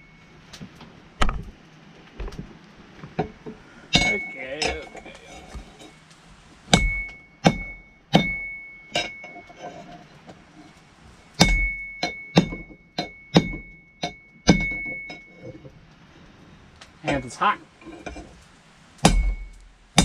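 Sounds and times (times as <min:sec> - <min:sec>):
anvil ringing: 0:03.9 - 0:05.0, 0:06.8 - 0:09.4, 0:11.4 - 0:15.3
hammer striking steel on anvil: 0:03.9 - 0:05.0, 0:06.7 - 0:09.4, 0:11.4 - 0:15.2, 0:19.0 - 0:20.0.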